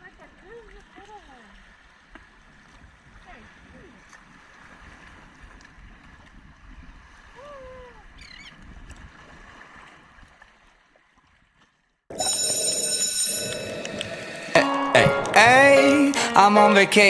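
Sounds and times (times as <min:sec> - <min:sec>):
wind: 0:00.0 - 0:12.1
water: 0:00.0 - 0:14.6
song with singing: 0:13.9 - 0:17.0.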